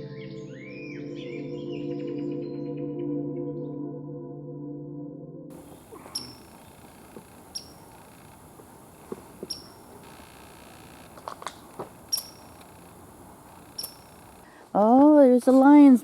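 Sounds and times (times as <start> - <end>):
quiet woodland background: 5.5 - 16.0
small animal high chirp: 5.6 - 14.4
soft footfalls or twig snaps: 5.6 - 14.4.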